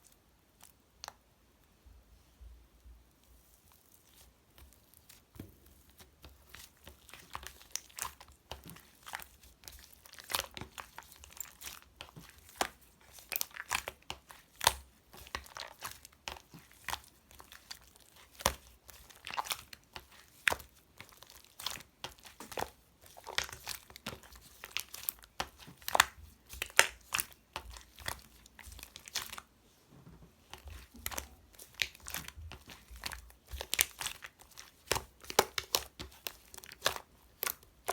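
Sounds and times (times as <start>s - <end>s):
slime clicking and popping: 30.6s - 37.9s.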